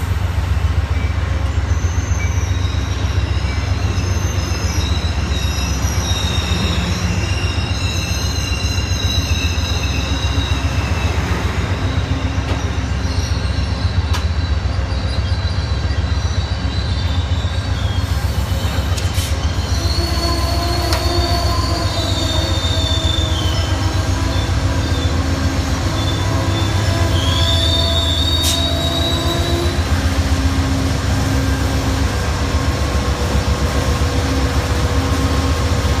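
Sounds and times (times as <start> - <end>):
diesel locomotive throbbing: 0.0 - 36.0
train wheels squealing on rails: 0.0 - 36.0
sharp clicks of train wheels: 13.7 - 14.4, 18.6 - 19.5.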